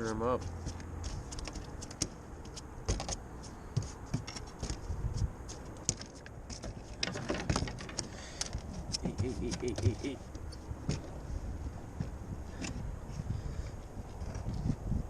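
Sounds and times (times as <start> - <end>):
handling clicks and rattles: 3.8 - 4.9, 5.5 - 11.2.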